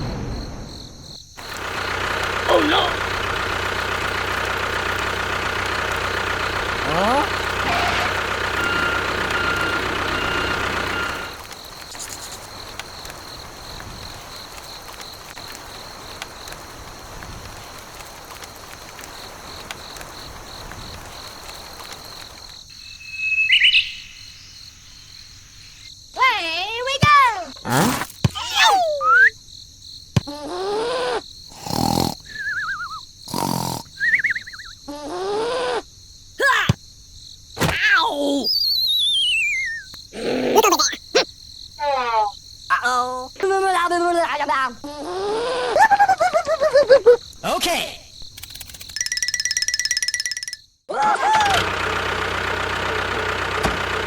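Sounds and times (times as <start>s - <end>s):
cricket chirping: 0.0s - 50.9s
small motor whining: 1.4s - 12.2s
short noisy bursts: 1.4s - 12.8s
faint clicks: 3.0s - 22.7s
warbling whistle tones: 22.8s - 24.5s, 28.6s - 29.4s, 32.3s - 33.0s, 34.0s - 34.8s, 38.5s - 39.9s
swooping cartoon tones: 38.0s - 39.9s.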